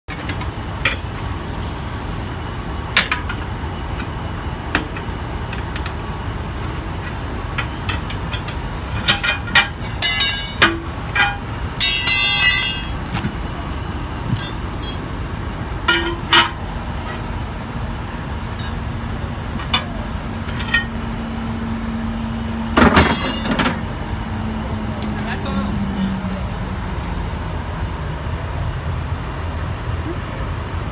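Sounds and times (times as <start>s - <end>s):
steady hum: 0.8s - 29.7s
metal clanks and knocks: 7.0s - 13.4s, 14.2s - 15.1s, 15.8s - 17.3s, 18.6s - 21.1s, 22.6s - 24.0s
rapid metallic rattle: 7.9s - 13.2s.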